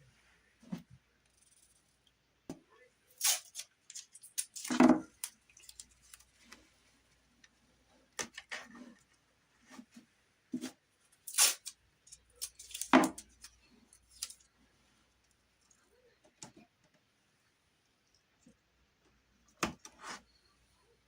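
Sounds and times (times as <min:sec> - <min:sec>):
rustling of materials: 0:03.1 - 0:15.8.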